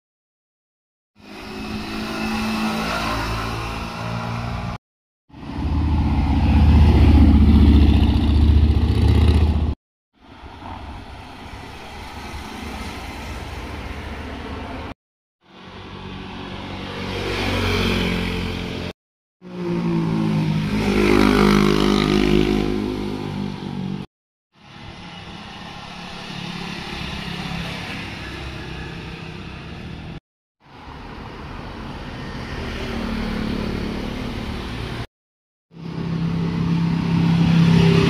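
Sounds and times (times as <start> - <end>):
motorcycles riding past: 1.2 - 4.8, 5.4 - 9.8, 15.7 - 18.9, 19.5 - 24.1.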